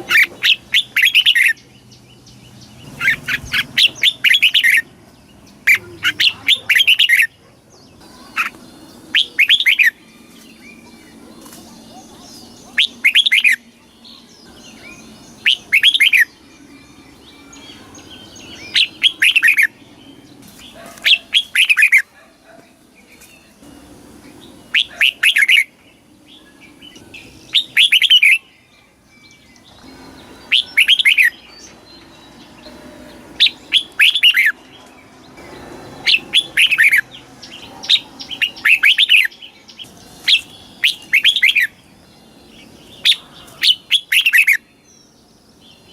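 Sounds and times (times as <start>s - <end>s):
bird singing whistled phrases: 8.4s - 10.9s, 11.9s - 19.8s, 24.7s - 25.7s, 26.4s - 28.5s, 29.1s - 31.6s, 33.4s - 34.6s, 40.3s - 41.8s, 43.0s - 44.7s.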